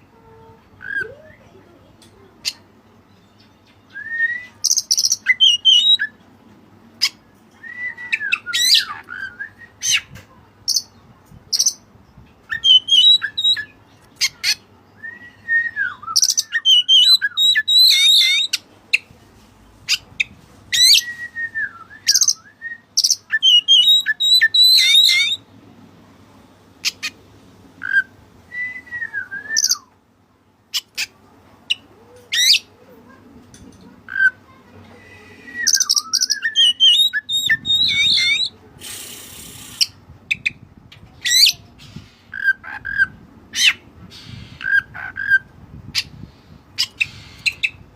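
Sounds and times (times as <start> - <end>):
magpie-robin singing: 2.4 - 6.2, 7.0 - 19.1, 19.8 - 21.2, 21.9 - 25.4, 28.9 - 29.9, 31.7 - 32.7, 35.2 - 38.6, 39.4 - 46.2, 46.8 - 47.9.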